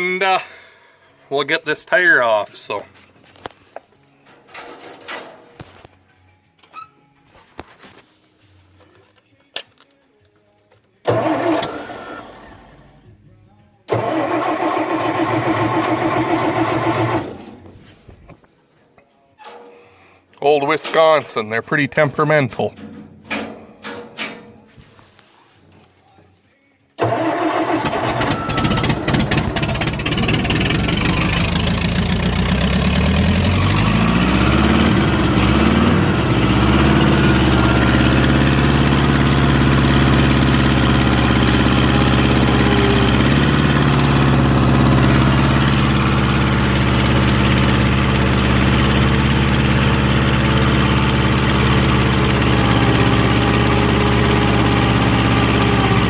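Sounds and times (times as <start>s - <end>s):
gas engine starting and running: 11.0s - 13.1s, 13.9s - 17.7s, 27.0s - 56.0s
engine knocks: 28.1s - 56.0s.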